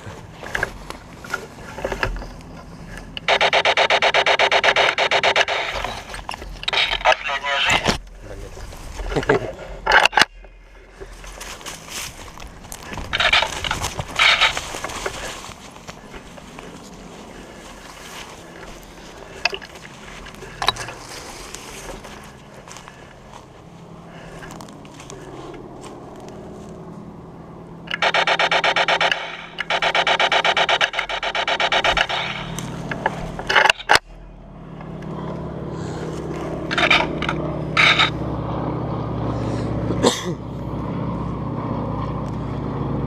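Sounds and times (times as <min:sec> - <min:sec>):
electronic pulsing buzz: 0:01.8 - 0:08.2, 0:27.6 - 0:35.6
sharp cracks: 0:03.2 - 0:08.1, 0:12.2 - 0:16.0, 0:27.9 - 0:34.1
rustling: 0:10.8 - 0:26.8.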